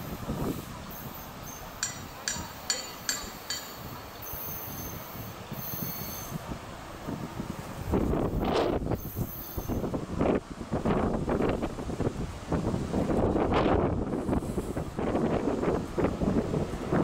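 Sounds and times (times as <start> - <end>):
train wheels rumbling on rail: 0.0 - 17.0
sharp metallic rings: 1.5 - 3.9.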